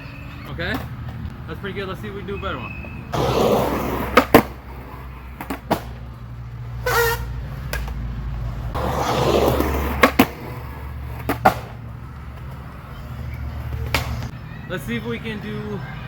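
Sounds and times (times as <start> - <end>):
skateboard wheels rolling on pavement: 0.0 - 16.0
skateboard scraping squeal: 2.4 - 5.4, 6.8 - 7.6, 8.7 - 14.7
skateboard wooden clacks: 8.8 - 10.4, 11.0 - 12.7, 13.5 - 14.3.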